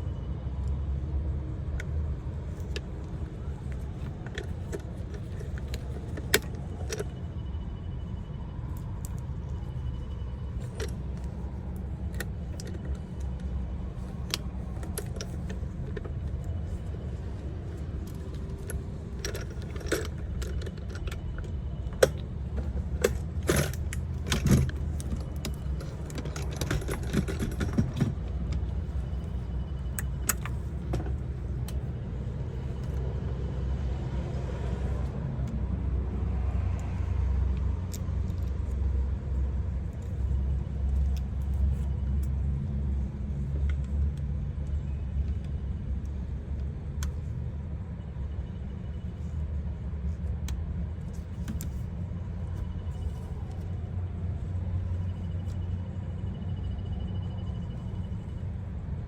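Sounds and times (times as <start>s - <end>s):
metallic clinks and clatter: 3.4s - 30.9s.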